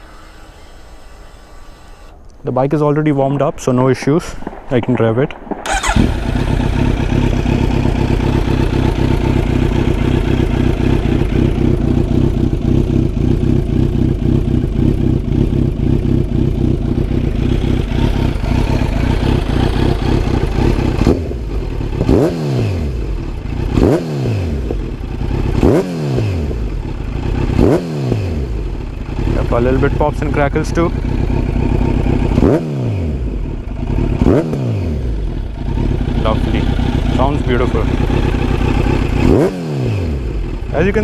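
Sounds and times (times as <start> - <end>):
motorcycle engine idling and revving: 0.0 - 2.2, 5.6 - 41.0
exhaust popping and crackling: 3.6 - 22.4.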